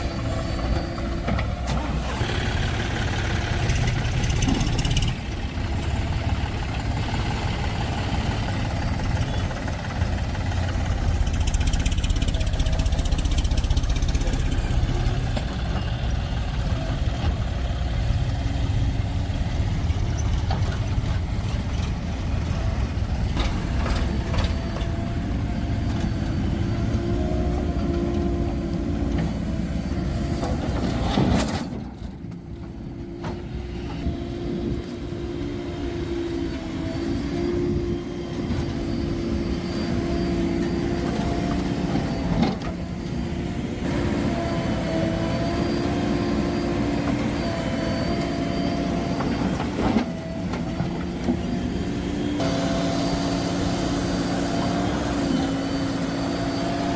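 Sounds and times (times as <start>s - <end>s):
heavy diesel engine running: 0.0s - 56.9s.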